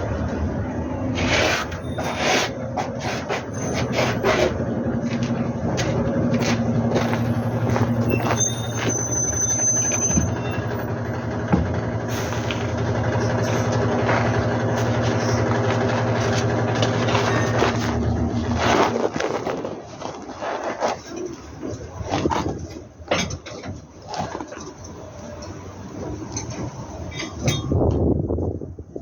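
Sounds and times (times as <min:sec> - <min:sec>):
engine humming: 0:00.0 - 0:28.8.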